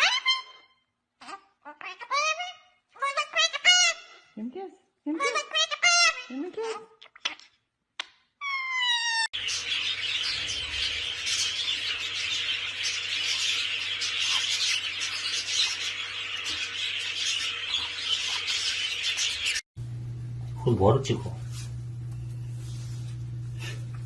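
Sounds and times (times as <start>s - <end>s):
flock of small birds chirping: 9.4s - 19.6s.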